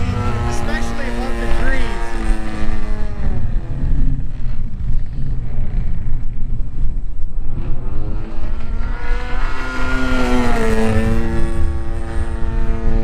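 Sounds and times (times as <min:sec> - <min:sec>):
model plane engine: 0:00.0 - 0:06.0.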